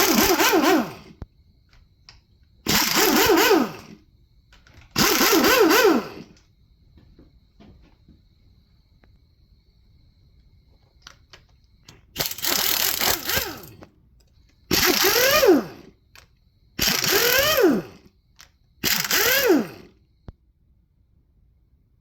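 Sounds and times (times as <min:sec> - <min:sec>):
air tool motor whirring: 0:00.0 - 0:01.2, 0:02.7 - 0:04.0, 0:05.0 - 0:06.3, 0:12.2 - 0:13.8, 0:14.7 - 0:15.9, 0:16.8 - 0:18.1, 0:18.8 - 0:19.9.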